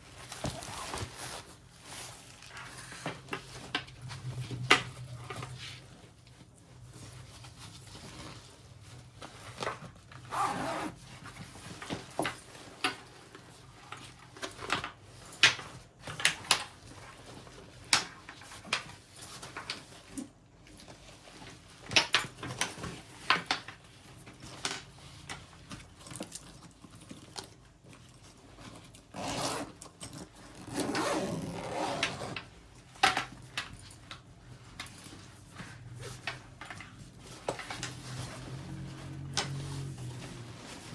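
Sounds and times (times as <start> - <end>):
bag fabric rubbing: 10.3 - 11.0, 29.1 - 29.8, 30.6 - 32.4
zipper being pulled: 10.3 - 11.0, 29.1 - 29.9, 30.5 - 32.4.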